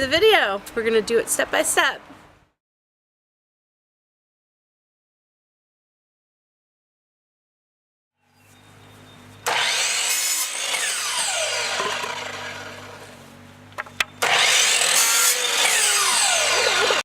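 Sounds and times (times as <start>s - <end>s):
power saw cutting wood: 9.4s - 13.3s, 14.2s - 17.0s.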